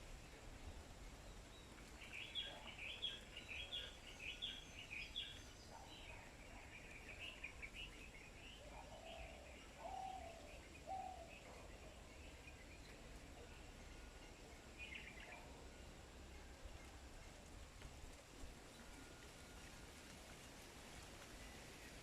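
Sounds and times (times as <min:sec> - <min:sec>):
small birds chirping: 0:00.0 - 0:15.7.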